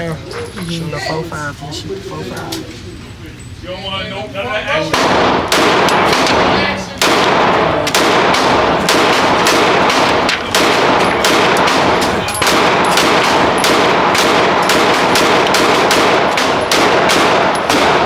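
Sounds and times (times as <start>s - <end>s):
rapid pistol gunshots: 4.9s - 18.0s.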